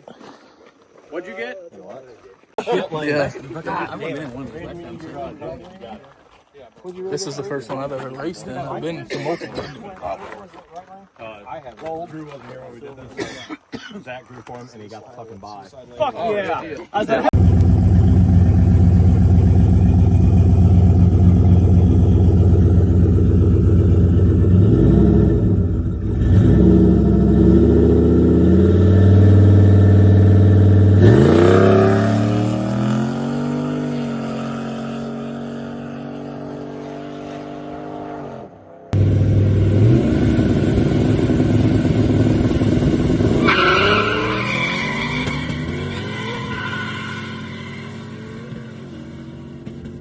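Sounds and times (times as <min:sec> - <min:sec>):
drag car engines revving: 0:17.3 - 0:38.2, 0:39.0 - 0:50.0
car accelerating away: 0:17.3 - 0:50.0.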